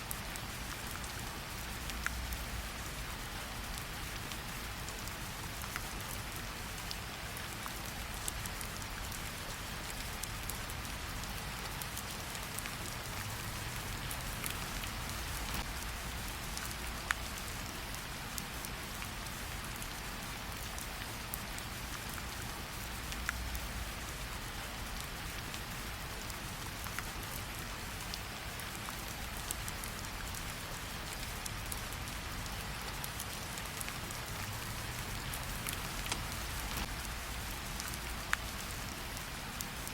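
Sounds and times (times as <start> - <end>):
steady rain falling: 0.0 - 39.9
sharp crackles: 32.8 - 39.2.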